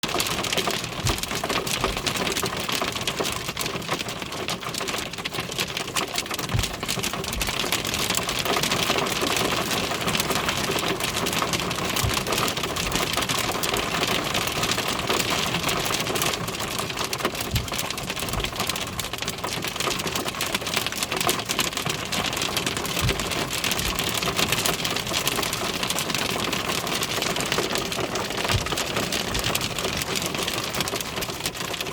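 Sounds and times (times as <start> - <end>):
hail clattering on surfaces: 0.0 - 31.9
low thuds: 28.4 - 29.7.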